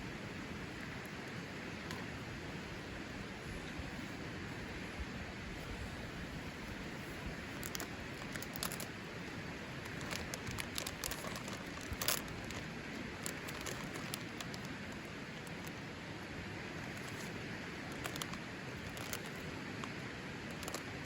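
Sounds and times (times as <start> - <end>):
steady hiss: 0.0 - 21.0
campfire crackling and popping: 9.6 - 15.8.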